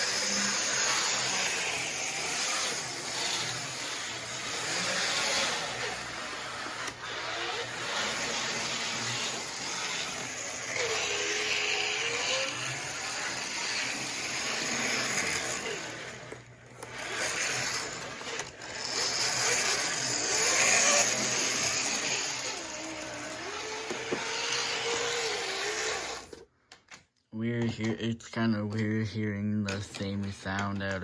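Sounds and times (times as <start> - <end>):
toy train motor whining: 0.0 - 26.5.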